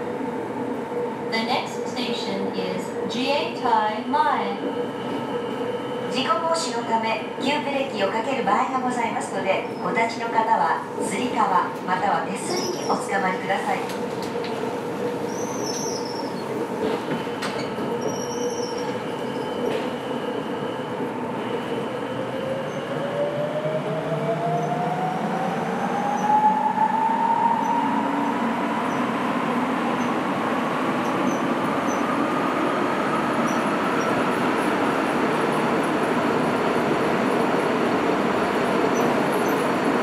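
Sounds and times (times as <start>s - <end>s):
train rolling noise: 8.9s - 40.0s.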